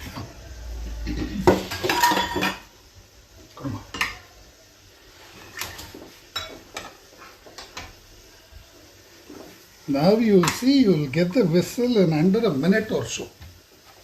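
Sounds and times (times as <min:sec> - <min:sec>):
metal pots clattering: 0:00.9 - 0:02.7, 0:05.5 - 0:08.0.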